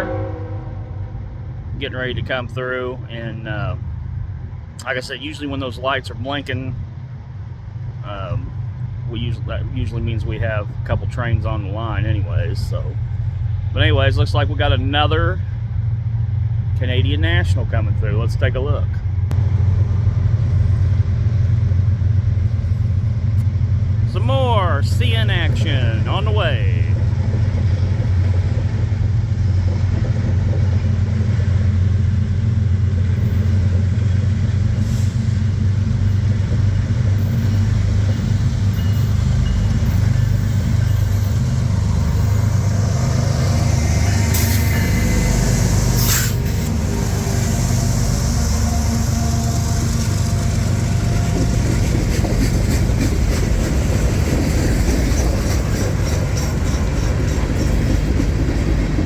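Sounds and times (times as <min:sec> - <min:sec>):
diesel locomotive drone: 0:00.0 - 0:59.0
train wheels clicking over rail joints: 0:24.8 - 0:59.0.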